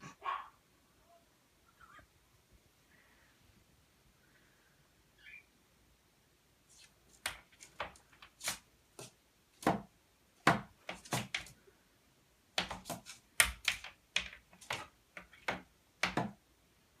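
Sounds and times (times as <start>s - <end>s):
parrot clicking and tapping: 12.6s - 16.4s.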